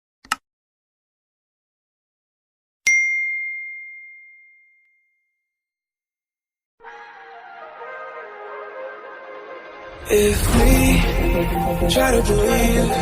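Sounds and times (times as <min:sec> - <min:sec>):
clear bell-like ding: 0:02.9 - 0:05.5.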